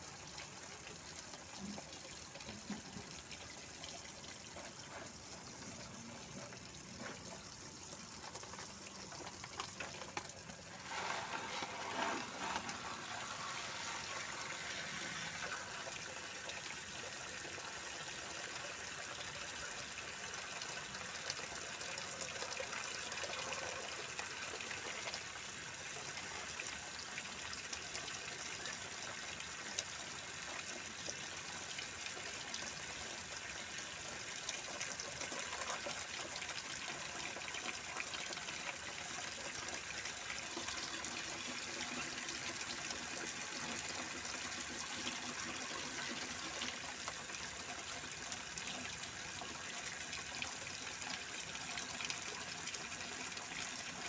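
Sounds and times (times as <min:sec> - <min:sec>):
running water splashing: 0:08.0 - 0:16.1.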